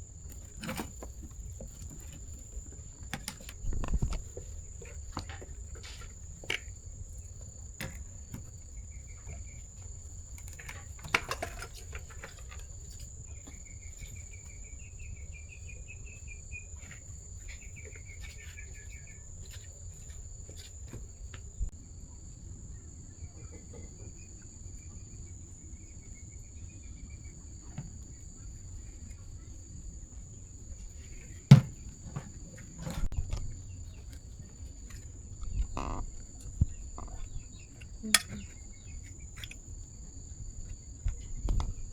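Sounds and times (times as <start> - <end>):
insects trilling: 0.0 - 41.9
clicks and knocks of handled parts: 37.8 - 39.6.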